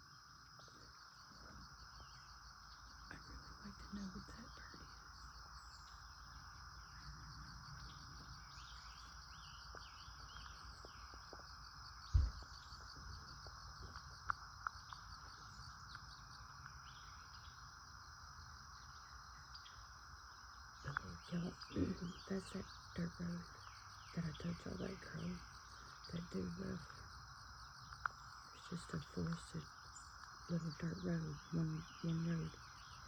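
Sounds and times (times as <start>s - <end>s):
high-pitched insect chorus: 0.0s - 33.0s
low thump: 12.1s - 12.5s.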